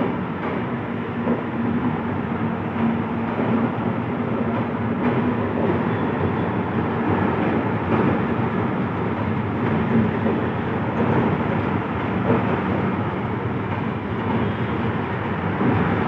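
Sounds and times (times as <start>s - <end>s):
electric train rumbling on track: 0.0s - 16.0s.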